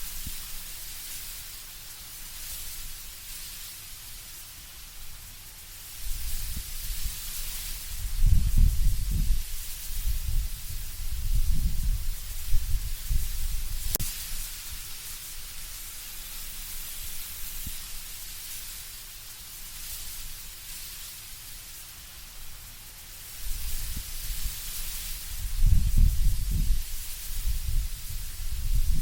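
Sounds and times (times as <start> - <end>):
leaves rustling: 0.0 - 29.0
wind through trees: 0.0 - 29.0
low wind rumble gusts: 6.0 - 14.0, 23.4 - 29.0.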